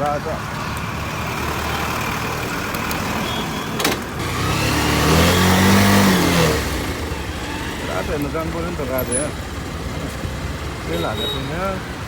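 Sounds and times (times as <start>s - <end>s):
road traffic: 0.0s - 12.0s
vehicle engine passing by: 4.2s - 11.0s.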